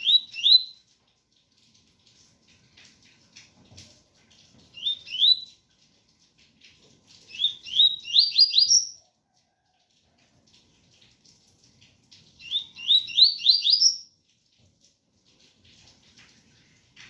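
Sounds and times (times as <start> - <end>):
bird singing whistled notes: 0.0 - 0.8, 4.8 - 5.5, 7.3 - 9.0, 12.4 - 14.1
faint rain patter: 0.0 - 17.0.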